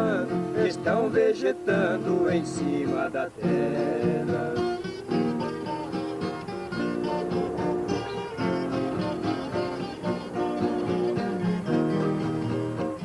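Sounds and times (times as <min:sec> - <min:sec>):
plucked acoustic guitars: 0:00.0 - 0:13.0
strummed guitar backing: 0:00.0 - 0:13.0.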